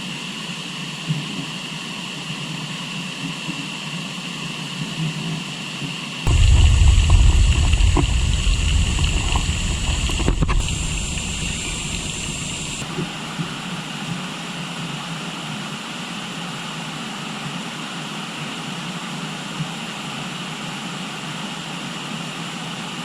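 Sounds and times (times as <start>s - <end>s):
heavy low rumble: 6.3s - 12.8s
high-pitched hum: 6.3s - 12.8s
river rushing: 6.3s - 12.8s.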